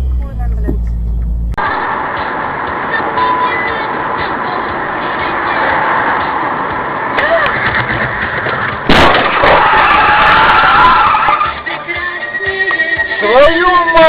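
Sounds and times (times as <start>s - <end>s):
car road noise: 0.0s - 14.0s
car collision crash: 6.4s - 11.6s
loud wavering high squeal: 9.6s - 11.7s.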